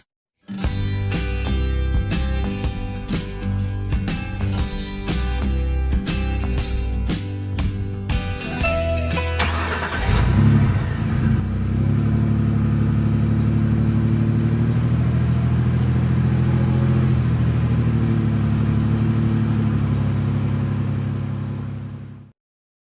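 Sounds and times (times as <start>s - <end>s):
truck engine starting and running: 0.7s - 22.3s.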